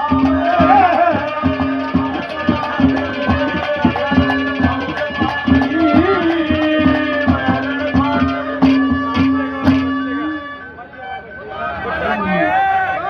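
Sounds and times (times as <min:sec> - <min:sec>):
hand drum fast rhythm: 0:00.0 - 0:10.3
held melody notes: 0:00.0 - 0:11.5.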